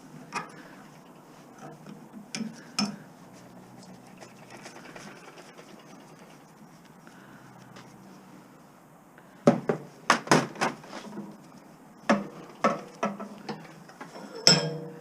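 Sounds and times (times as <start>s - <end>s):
scrap metal knocking and clattering: 12.1s - 15.0s.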